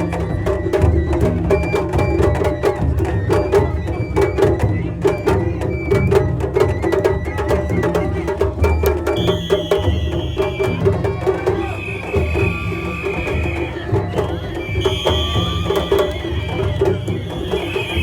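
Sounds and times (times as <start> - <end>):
drums in fast rhythm: 0.0 - 18.0
sharp high percussion strokes: 9.0 - 18.0.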